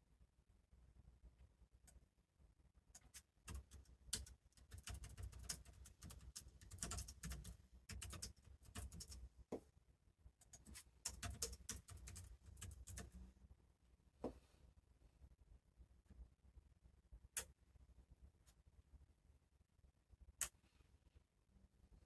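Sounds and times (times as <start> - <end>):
faint keyboard typing: 2.9 - 9.3, 10.4 - 13.3.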